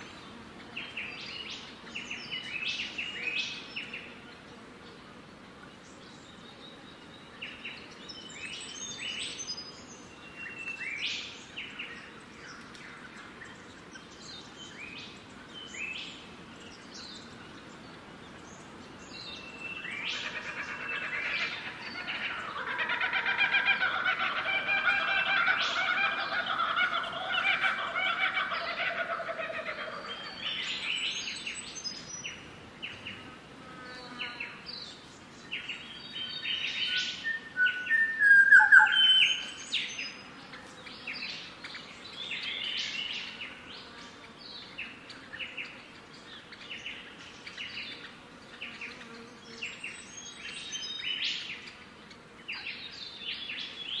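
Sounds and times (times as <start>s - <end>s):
birds chirping: 5.8s - 33.3s.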